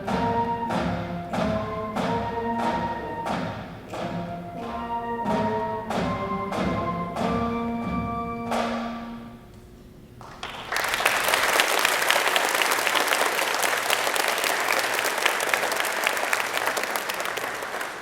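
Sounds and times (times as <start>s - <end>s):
audience applause: 10.2s - 18.0s.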